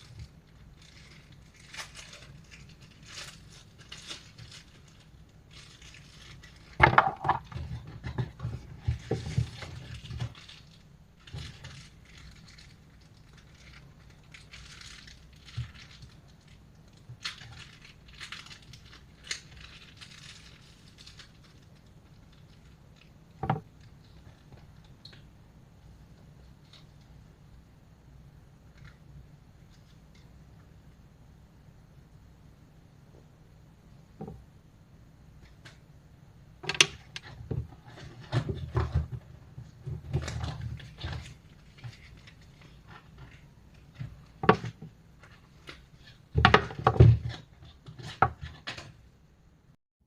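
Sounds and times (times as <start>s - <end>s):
packaging rustling: 0.0s - 23.1s, 36.8s - 49.0s.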